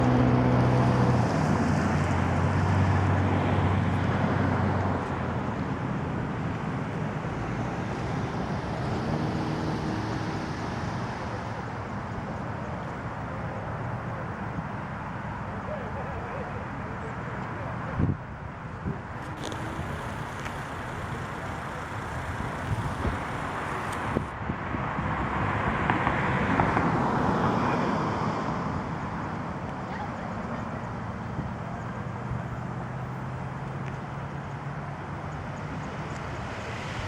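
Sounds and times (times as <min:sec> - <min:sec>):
vehicle passing: 0:00.0 - 0:12.0, 0:19.1 - 0:24.4, 0:25.0 - 0:37.0
low engine hum: 0:18.9 - 0:24.6.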